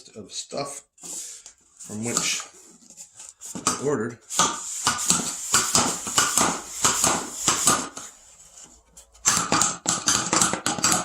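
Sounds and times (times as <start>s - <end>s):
packaging rustling and knocking: 3.3s - 8.2s.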